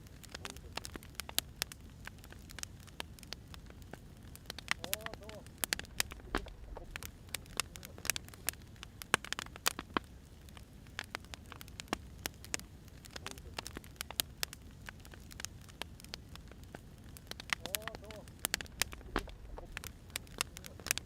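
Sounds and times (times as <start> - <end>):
low rumble of burning logs: 0.0 - 21.0
wood fire popping and snapping: 0.0 - 21.0.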